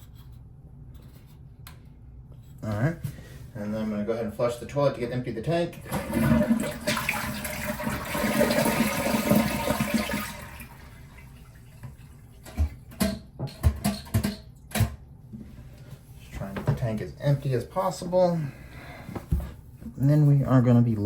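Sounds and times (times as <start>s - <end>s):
toilet flushing: 5.7s - 14.7s.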